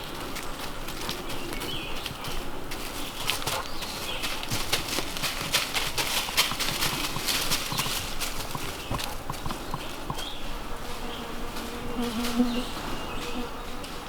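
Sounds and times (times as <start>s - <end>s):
footsteps on rocky trail: 0.0s - 14.0s.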